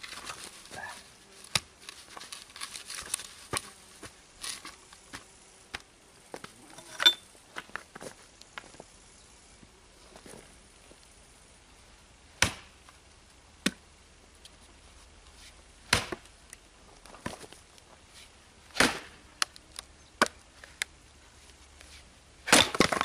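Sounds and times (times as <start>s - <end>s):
axe chopping log: 12.4s - 12.8s, 15.9s - 16.2s, 18.7s - 19.2s, 20.2s - 20.4s, 22.4s - 23.0s.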